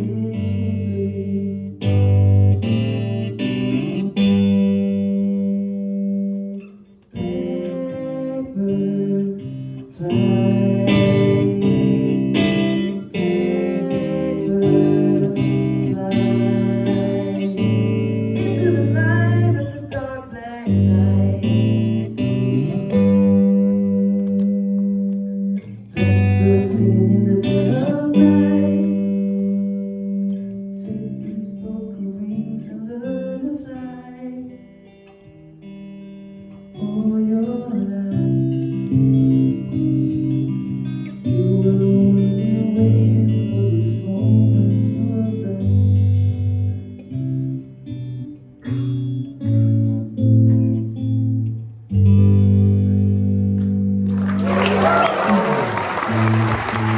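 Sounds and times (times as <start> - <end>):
person singing: 0.0 - 1.8, 7.2 - 22.1, 26.0 - 29.6
guitar playing plucked chords: 0.0 - 56.9.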